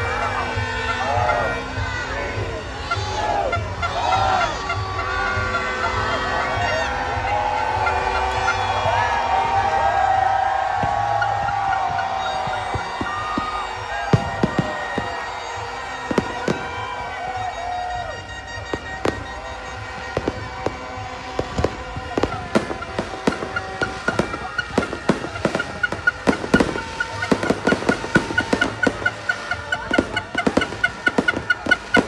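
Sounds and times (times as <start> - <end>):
background music: 0.0 - 32.0
fireworks bangs and pops: 7.2 - 32.0.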